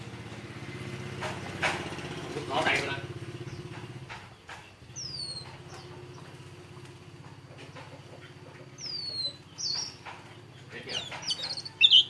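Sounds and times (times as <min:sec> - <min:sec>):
low engine-like hum: 0:00.0 - 0:12.0
songbird whistled calls: 0:04.9 - 0:05.8, 0:08.8 - 0:10.0, 0:10.6 - 0:12.0.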